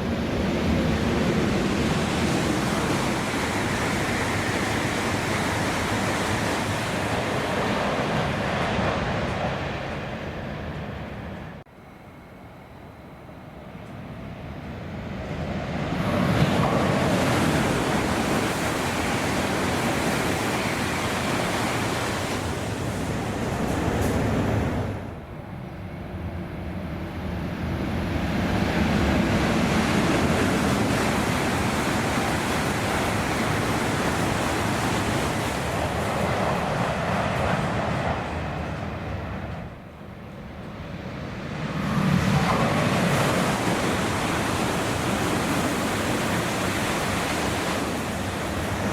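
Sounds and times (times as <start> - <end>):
high-speed train passing: 0.0 - 48.9.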